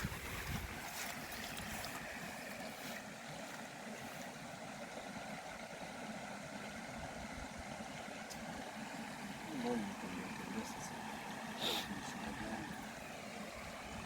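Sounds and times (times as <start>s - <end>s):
faint outdoor background hiss: 0.0s - 14.0s.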